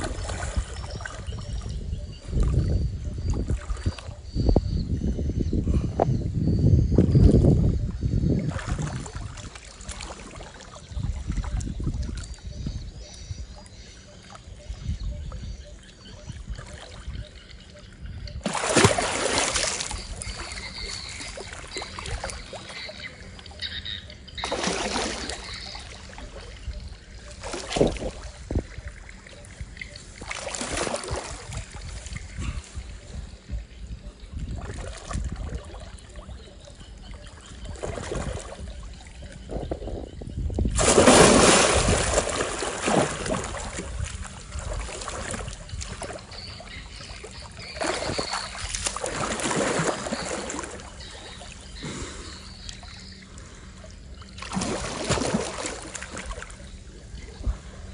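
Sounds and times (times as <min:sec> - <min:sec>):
water splashing in surges: 0:00.0 - 0:01.4, 0:08.4 - 0:12.6, 0:18.4 - 0:33.6, 0:34.4 - 0:39.3, 0:40.5 - 0:57.9.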